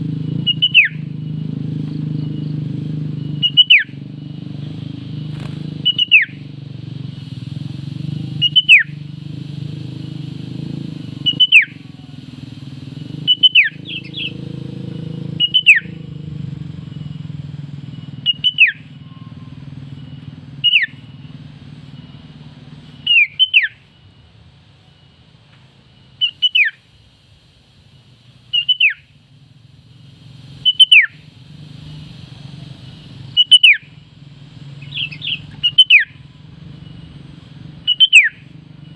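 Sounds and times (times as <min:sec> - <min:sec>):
low steady rumble: 0:05.5 - 0:38.9
bird calls sliding downward: 0:08.2 - 0:15.9, 0:23.0 - 0:23.8, 0:26.2 - 0:26.8, 0:28.5 - 0:29.1, 0:30.5 - 0:33.9, 0:34.8 - 0:36.1.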